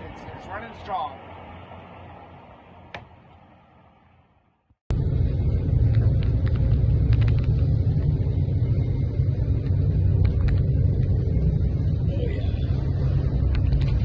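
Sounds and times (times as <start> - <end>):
boat engine rumbling: 4.9 - 14.0.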